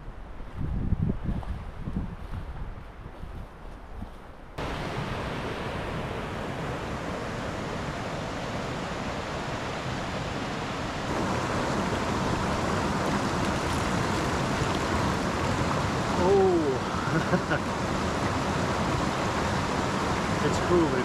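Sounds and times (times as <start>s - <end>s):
creek water rushing: 4.6s - 21.0s.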